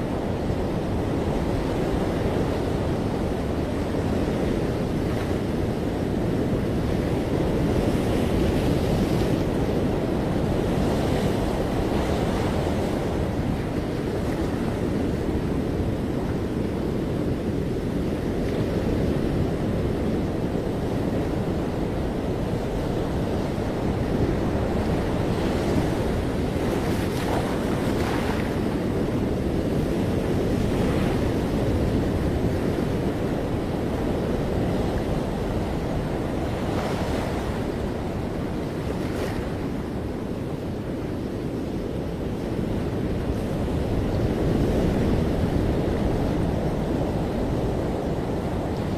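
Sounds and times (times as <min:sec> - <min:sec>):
wind buffeting microphone: 0:00.0 - 0:48.9
ocean surf breaking: 0:18.3 - 0:41.6.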